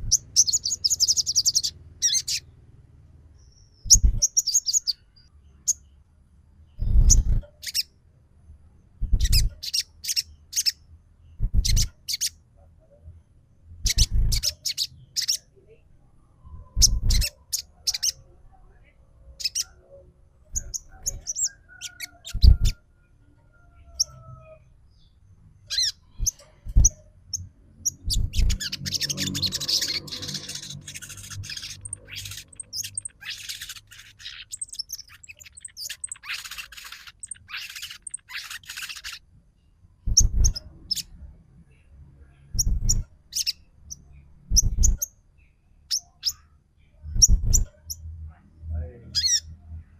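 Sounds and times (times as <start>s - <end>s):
bird chirping and chattering: 0.0s - 2.5s, 3.4s - 5.9s, 6.7s - 7.9s, 9.0s - 12.4s, 13.8s - 15.5s, 16.6s - 18.3s, 19.3s - 22.8s, 23.9s - 39.3s, 40.0s - 41.8s, 42.4s - 46.5s, 47.1s - 48.1s, 48.8s - 49.6s.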